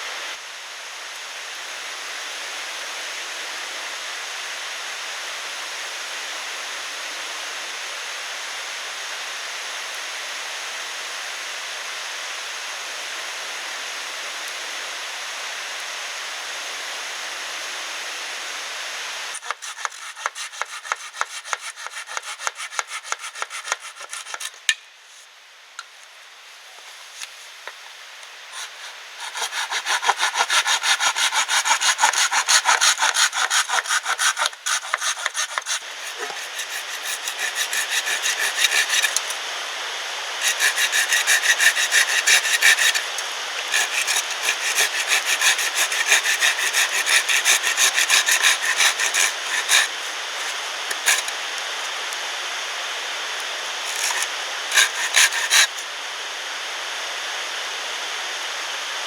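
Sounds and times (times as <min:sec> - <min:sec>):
handsaw cutting wood: 0:19.3 - 0:24.6, 0:28.5 - 0:39.4, 0:40.4 - 0:52.2, 0:53.5 - 0:55.8.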